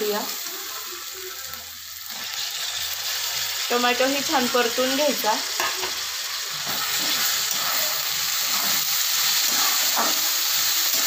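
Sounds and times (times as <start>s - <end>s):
vegetables sizzling in a pan: 0.0s - 11.0s
metal spatula scraping a pan: 5.5s - 11.0s.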